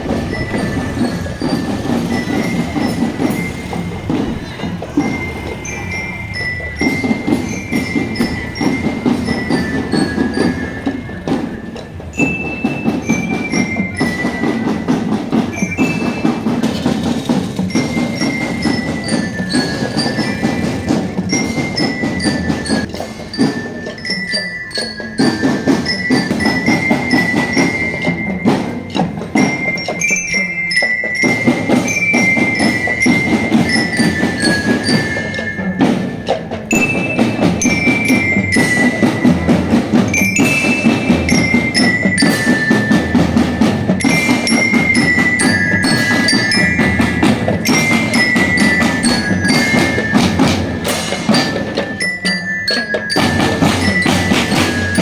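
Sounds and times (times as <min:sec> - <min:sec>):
bell-toned melody: 0:00.0 - 0:55.0
marching band drumming: 0:00.0 - 0:55.0.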